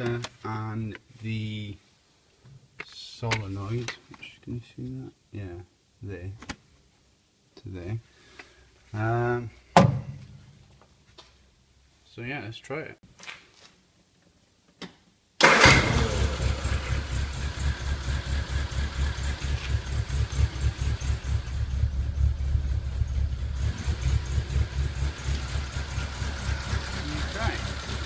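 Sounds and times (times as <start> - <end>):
car engine starting and running: 15.4 - 28.0.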